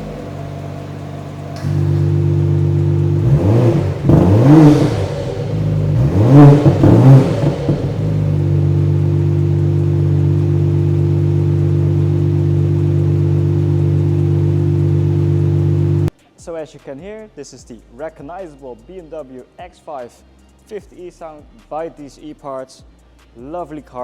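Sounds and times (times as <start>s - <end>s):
car engine idling: 0.0s - 16.1s
car engine revving: 0.0s - 16.1s.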